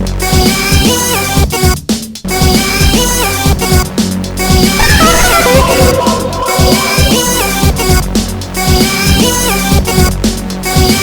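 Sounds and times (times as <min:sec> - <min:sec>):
heavy bass line: 0:04.5 - 0:09.0
drum hits: 0:04.6 - 0:09.0
synthesizer melody: 0:04.8 - 0:08.5.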